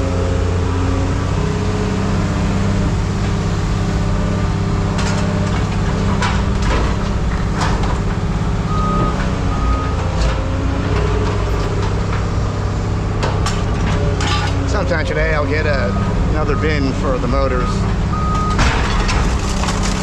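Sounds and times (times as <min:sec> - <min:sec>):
heavy machine engine running: 0:00.0 - 0:20.0
sharp metal clanks and knocks: 0:13.2 - 0:14.8.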